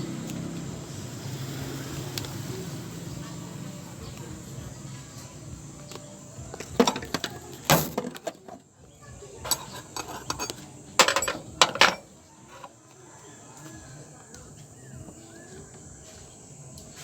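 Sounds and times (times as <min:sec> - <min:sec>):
metal tools clinking: 0:06.5 - 0:08.6, 0:09.4 - 0:12.8.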